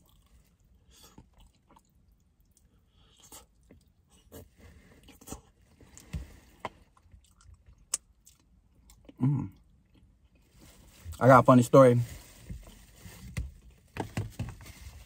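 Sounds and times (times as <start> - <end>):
person chewing food: 0.0 - 10.5
short vocal sound: 9.2 - 9.6.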